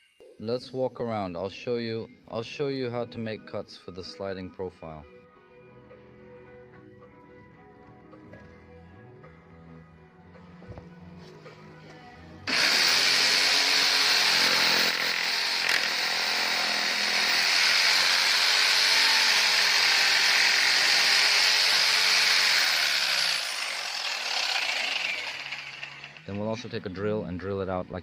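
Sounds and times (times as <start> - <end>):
power saw cutting wood: 12.5 - 26.7.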